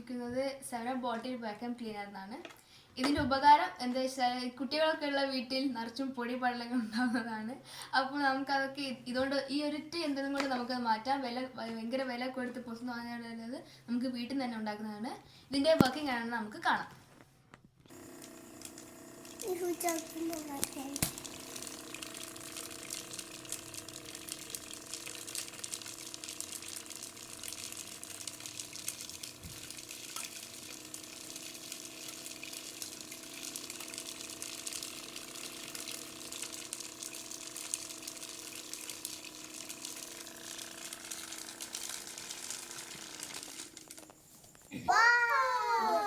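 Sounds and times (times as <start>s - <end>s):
vacuum cleaner motor humming: 17.9s - 44.1s.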